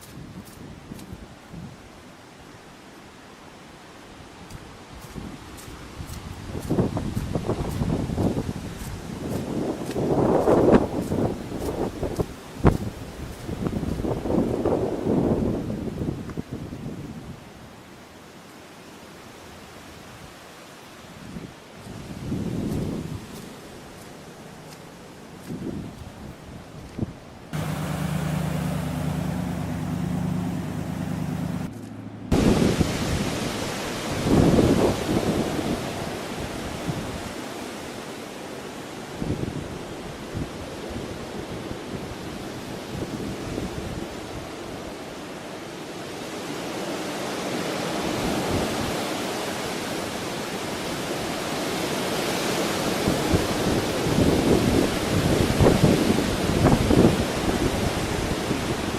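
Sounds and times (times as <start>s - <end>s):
rushing water: 0.0s - 58.9s
wind: 0.0s - 58.9s
wind buffeting microphone: 4.5s - 17.4s, 21.2s - 24.0s, 24.6s - 37.4s, 52.8s - 58.9s
low mechanical hum: 27.6s - 32.6s
surf: 27.6s - 39.4s.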